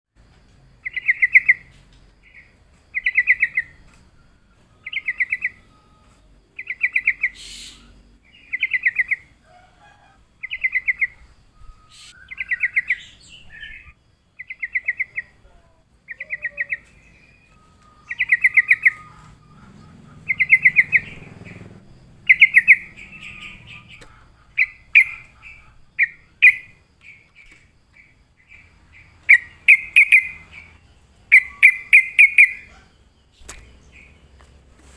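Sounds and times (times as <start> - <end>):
bird singing: 0.2 - 34.9.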